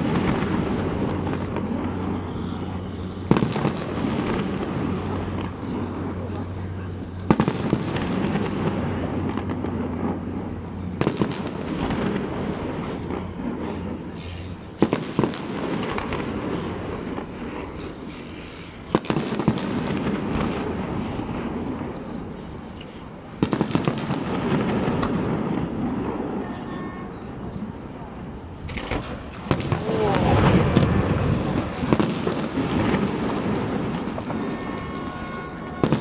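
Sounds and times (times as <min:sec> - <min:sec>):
fireworks crackling and rumble: 0:00.0 - 0:36.0
firework shell bursts: 0:23.5 - 0:36.0.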